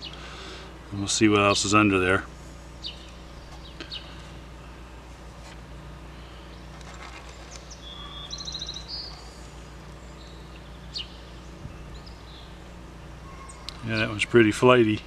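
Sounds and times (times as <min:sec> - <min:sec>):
low outdoor rumble: 0:00.0 - 0:15.0
small bird chirping: 0:02.8 - 0:04.2, 0:06.2 - 0:14.3.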